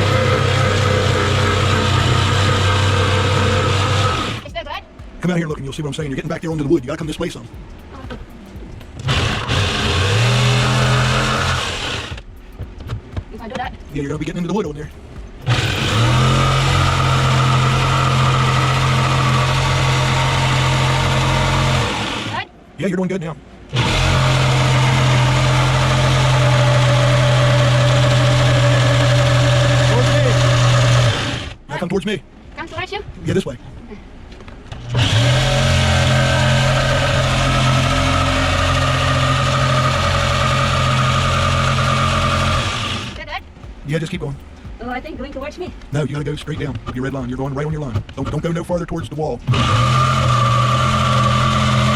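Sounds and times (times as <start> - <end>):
electric saw cutting wood: 0.0 - 4.6, 9.0 - 12.3, 15.4 - 22.4, 23.7 - 31.6, 34.7 - 43.2, 49.4 - 51.9.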